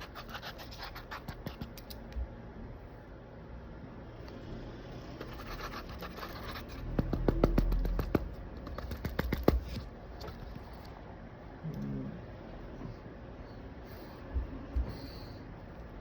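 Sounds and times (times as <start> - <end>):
pencil scratching on paper: 0.0 - 2.0, 5.2 - 10.6
sharp taps: 6.8 - 10.4.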